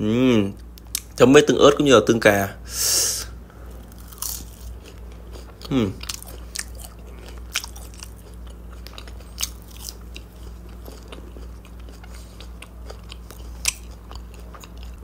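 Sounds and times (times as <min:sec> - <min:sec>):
steady low hum: 0:00.0 - 0:15.0
person chewing fries: 0:03.6 - 0:15.0.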